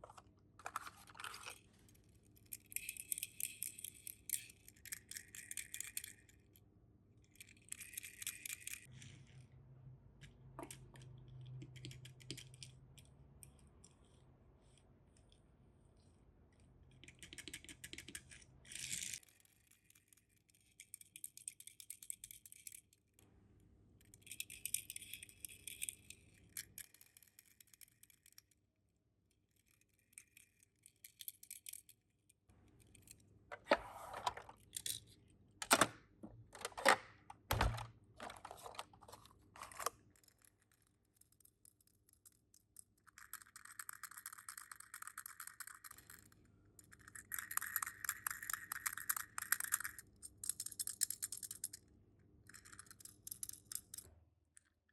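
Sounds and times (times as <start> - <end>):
toy cars rattling and clinking: 2.4 - 6.6, 7.3 - 9.1, 37.7 - 51.8, 52.5 - 54.0.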